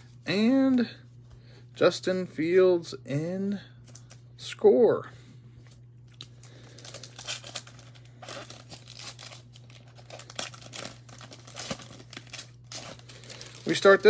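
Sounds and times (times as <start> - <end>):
low electrical hum: 0.0 - 14.0
plastic wrapper tearing and crinkling: 6.1 - 14.0.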